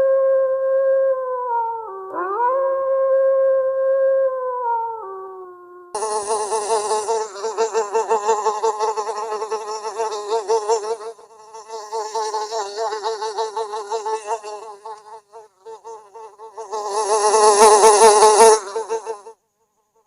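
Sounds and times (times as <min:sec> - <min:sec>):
howl-like pitched call: 0:00.0 - 0:19.3
loud wavering buzz: 0:06.0 - 0:19.3.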